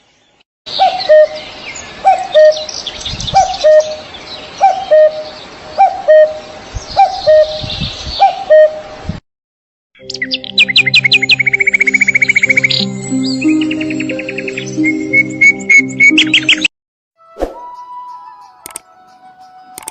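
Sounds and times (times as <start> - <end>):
birds chirping: 0.0 - 8.8, 10.0 - 16.7.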